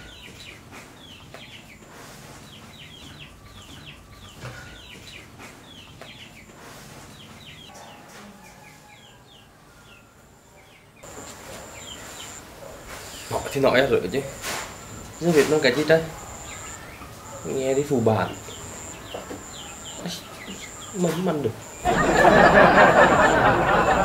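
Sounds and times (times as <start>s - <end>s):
birds chirping: 0.0s - 24.0s
high insect whine: 11.0s - 16.8s, 17.4s - 24.0s.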